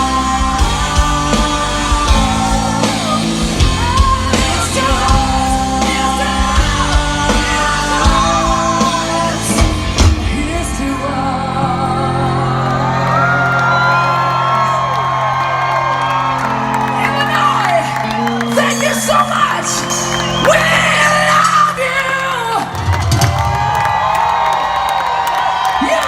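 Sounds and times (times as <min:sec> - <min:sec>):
person singing and yelling: 0:00.0 - 0:13.2, 0:17.0 - 0:22.8
live band playing loud music: 0:00.0 - 0:25.0
drums: 0:00.0 - 0:26.0.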